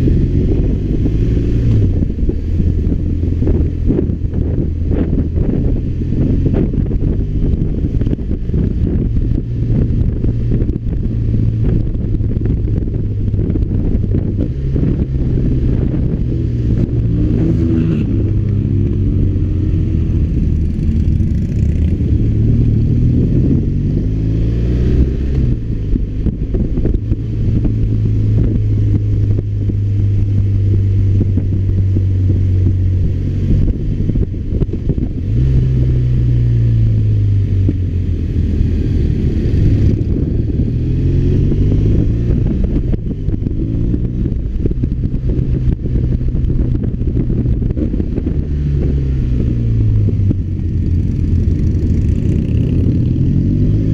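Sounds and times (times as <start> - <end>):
motorcycle engine humming: 0.0 - 53.9.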